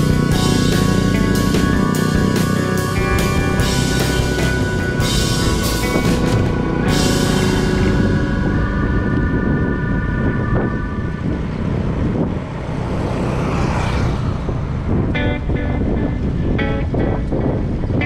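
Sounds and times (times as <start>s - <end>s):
background music: 0.0s - 11.6s
wind buffeting microphone: 0.0s - 18.0s.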